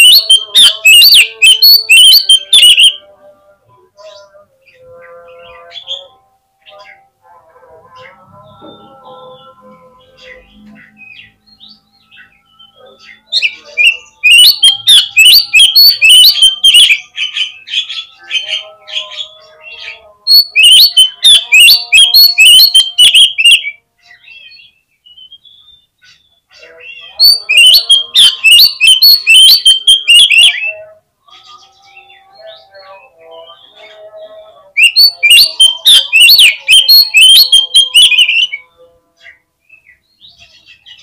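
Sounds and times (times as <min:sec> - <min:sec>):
bird chattering song: 0:00.0 - 0:03.0, 0:08.0 - 0:41.0
quiet bird calls: 0:10.0 - 0:41.0.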